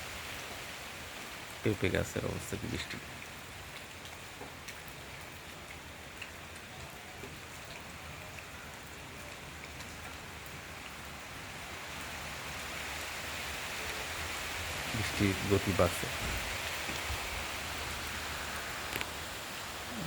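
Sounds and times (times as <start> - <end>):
steady rain falling: 0.0 - 20.0
raindrop ticks: 2.0 - 12.1, 18.0 - 19.3.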